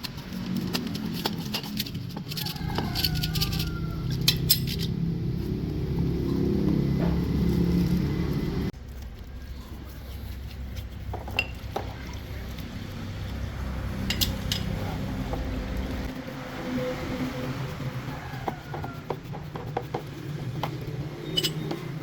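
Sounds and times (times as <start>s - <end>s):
metallic clinks of tools: 2.5s - 4.9s, 21.3s - 21.8s.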